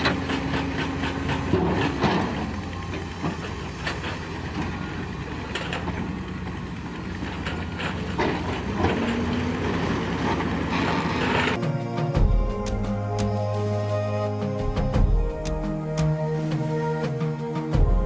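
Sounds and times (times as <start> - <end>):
metal clanks and knocks: 0.0 - 4.8, 7.2 - 9.6
heavy diesel engine running: 0.0 - 16.7.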